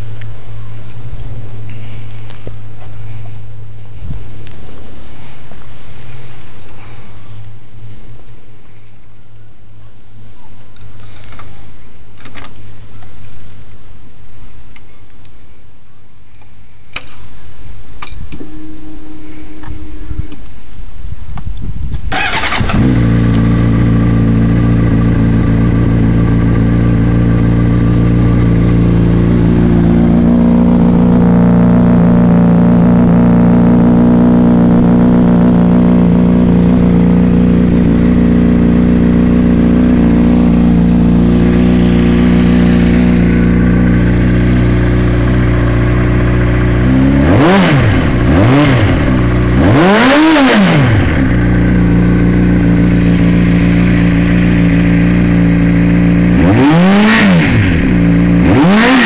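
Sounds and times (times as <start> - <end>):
motorcycle engine idling: 0.0 - 5.6, 22.1 - 56.7, 57.5 - 58.9
motorcycle engine revving: 22.1 - 59.0.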